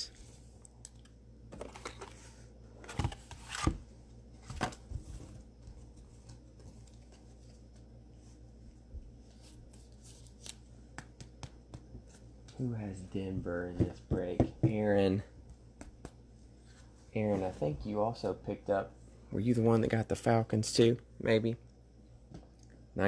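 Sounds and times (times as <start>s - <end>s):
cards tapping and sliding: 9.3s - 12.3s.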